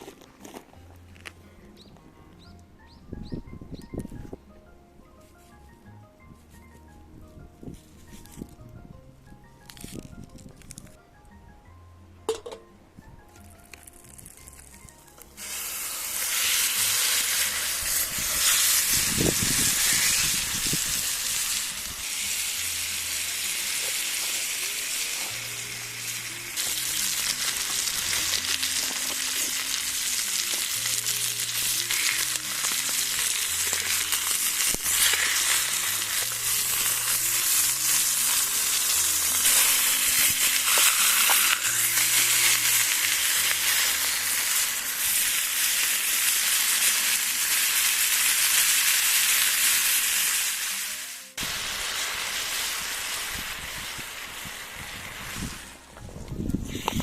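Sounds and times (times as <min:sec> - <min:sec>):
meat sizzling in frying pan: 0:15.4 - 0:55.7.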